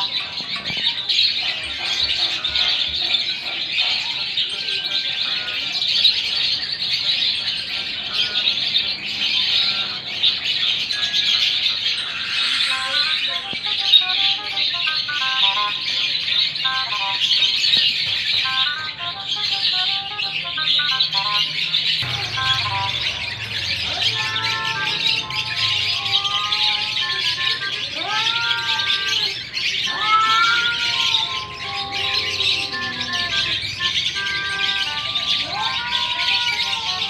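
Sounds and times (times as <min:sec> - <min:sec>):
steady high chatter: 0:00.0 - 0:37.0
cats yowling: 0:07.7 - 0:37.0
stepped musical notes: 0:22.0 - 0:26.0.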